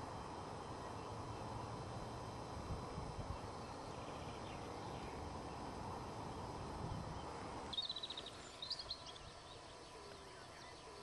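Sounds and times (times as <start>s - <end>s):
low rumbling outdoor noise: 0.0s - 11.0s
bird chirps: 6.3s - 11.0s
bird trilling: 7.0s - 11.0s.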